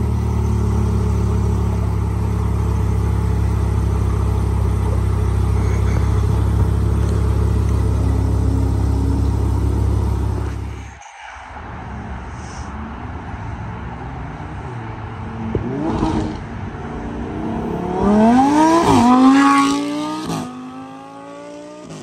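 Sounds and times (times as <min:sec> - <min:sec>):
car engine idling: 0:00.0 - 0:13.4.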